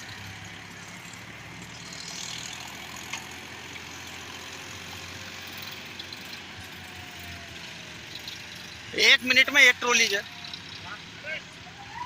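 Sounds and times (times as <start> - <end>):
tractor engine running: 0.0 - 11.6.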